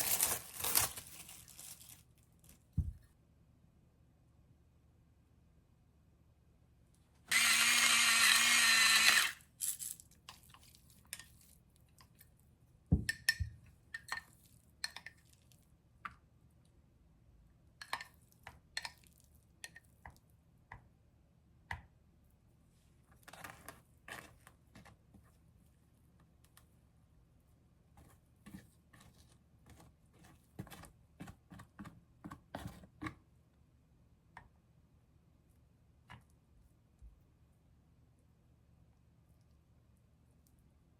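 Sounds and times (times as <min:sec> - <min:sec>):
small electric motor whirring: 0:07.3 - 0:09.4.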